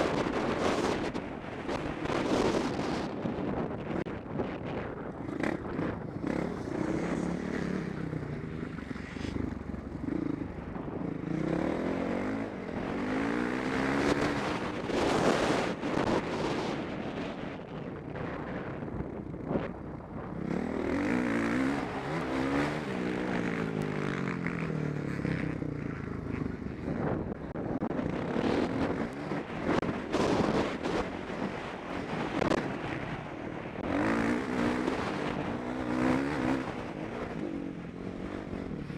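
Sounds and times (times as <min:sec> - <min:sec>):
wind buffeting microphone: 0:00.0 - 0:38.9
motorbike engine revving: 0:33.8 - 0:38.9.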